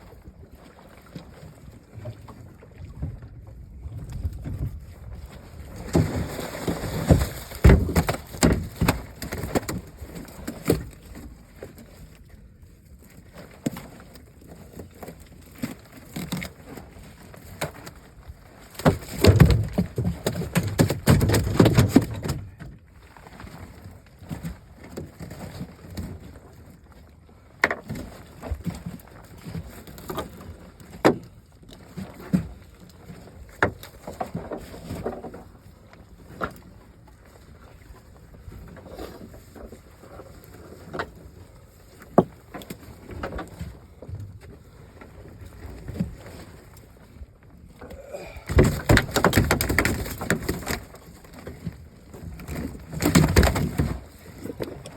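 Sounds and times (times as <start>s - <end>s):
knocks and thumps in boat: 0.0s - 54.9s
fish thrashing and banging: 5.8s - 10.9s, 18.7s - 22.6s, 47.8s - 51.6s, 52.2s - 54.9s.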